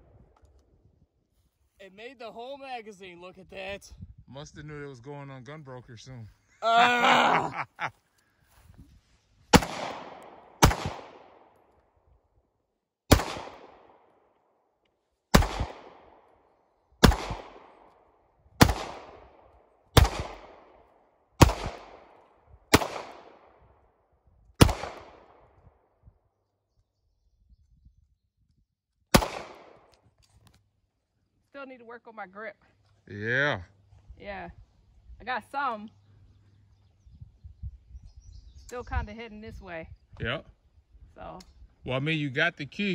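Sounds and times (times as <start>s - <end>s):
pistol shots with echo: 9.5s - 11.6s, 13.1s - 14.1s, 15.3s - 16.3s, 17.0s - 17.9s, 18.6s - 20.8s, 21.4s - 23.7s, 24.6s - 25.6s, 29.1s - 29.9s.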